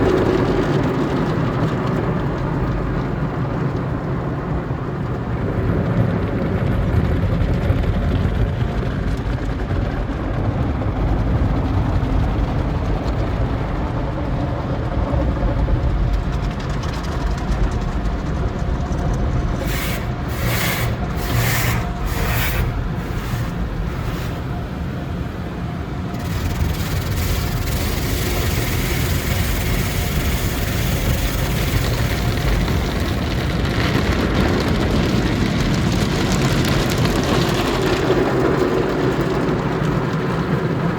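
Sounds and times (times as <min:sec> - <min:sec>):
car wash machinery rumble: 0:00.0 - 0:40.9
water against car: 0:16.0 - 0:40.9
hissing spray blasts: 0:19.6 - 0:25.0, 0:26.1 - 0:32.2.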